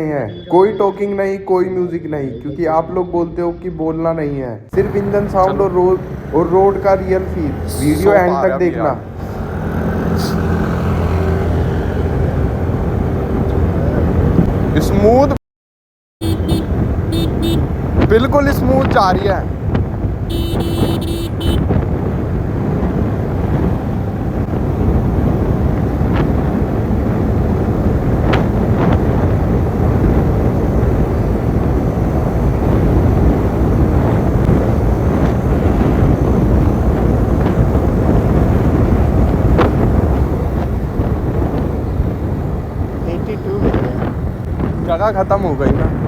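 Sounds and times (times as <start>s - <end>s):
wind buffeting microphone: 4.7s - 15.4s, 16.2s - 46.0s
scooter engine running at high speed: 16.2s - 18.0s, 19.8s - 43.1s.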